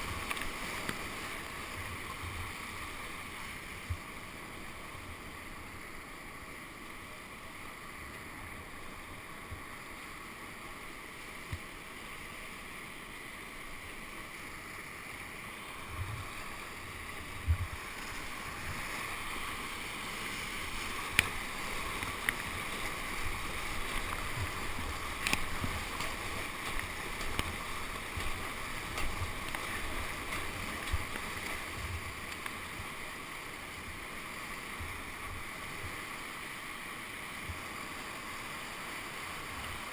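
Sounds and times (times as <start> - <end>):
rushing whitewater: 0.0 - 39.9.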